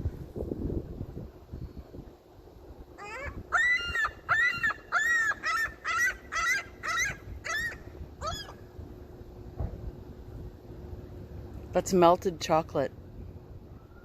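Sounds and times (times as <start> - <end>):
gull calling: 3.0 - 8.6.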